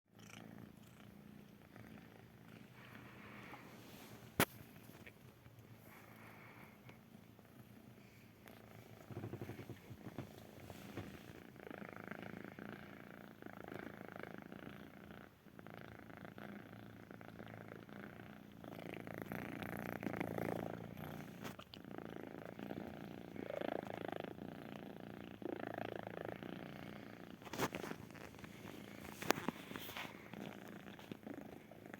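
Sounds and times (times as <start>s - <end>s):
kitten purring: 0.1s - 31.9s.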